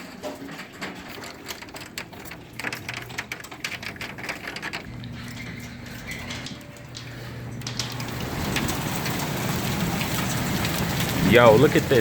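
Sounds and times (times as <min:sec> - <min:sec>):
hailstones pelting: 0:00.0 - 0:12.0
faint low hum: 0:01.5 - 0:09.0.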